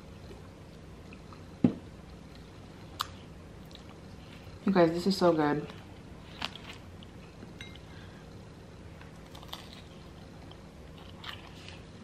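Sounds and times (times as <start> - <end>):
person chewing food: 2.1 - 4.6, 5.8 - 8.4, 9.0 - 12.0.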